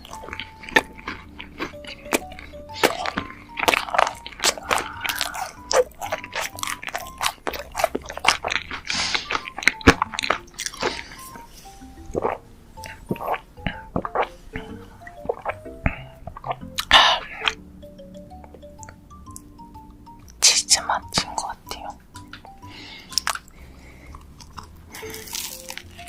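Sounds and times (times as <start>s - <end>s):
crunchy biting and chewing: 0.0s - 17.6s, 22.4s - 26.0s
soft background music: 0.0s - 26.0s.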